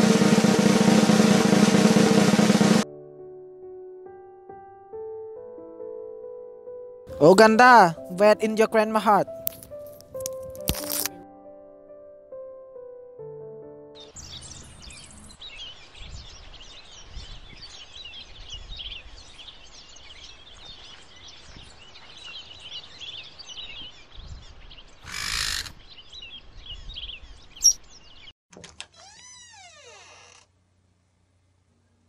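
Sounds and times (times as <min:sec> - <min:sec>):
small birds chirping: 0:14.0 - 0:28.3
door creaking open: 0:28.5 - 0:30.5.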